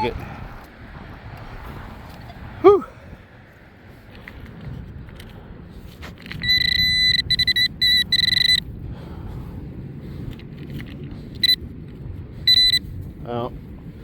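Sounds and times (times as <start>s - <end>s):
wind rumble on microphone: 0.0s - 14.0s
metal detector pinpointer beeping: 6.3s - 8.7s, 11.4s - 11.6s, 12.4s - 12.8s.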